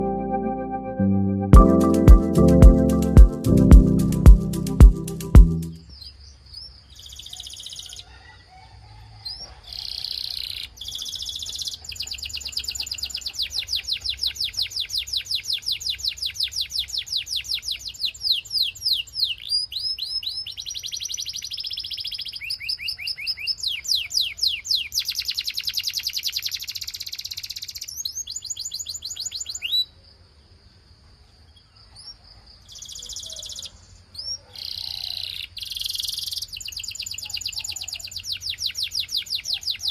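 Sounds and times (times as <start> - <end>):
canary singing trills: 9.3 - 30.0, 32.0 - 39.9.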